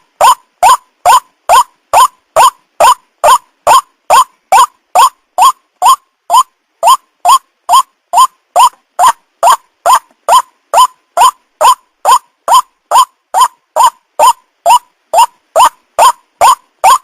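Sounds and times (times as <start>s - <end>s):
waterhen calling: 0.0s - 17.0s.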